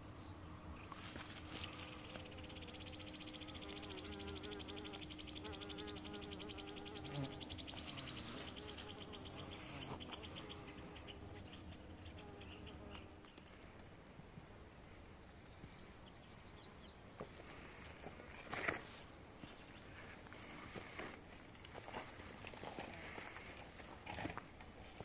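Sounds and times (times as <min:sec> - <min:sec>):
faint steady hum: 0:00.0 - 0:25.0
insect trilling: 0:01.6 - 0:11.2.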